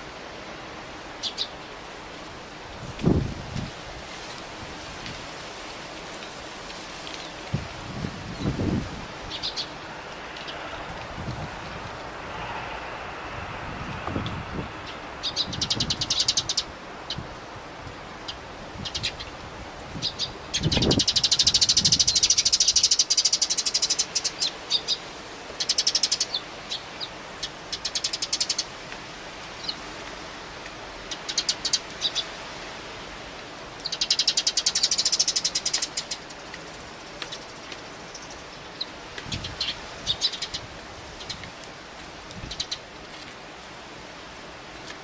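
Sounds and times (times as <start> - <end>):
wind noise: 2.6 - 5.4, 7.4 - 22.9, 39.2 - 42.7
wind gust on microphone: 2.7 - 5.3, 7.5 - 22.9, 39.2 - 41.6
sparrows chirping: 8.0 - 10.8, 14.8 - 17.3, 18.1 - 19.4, 20.0 - 25.0, 31.0 - 32.3, 33.8 - 41.5.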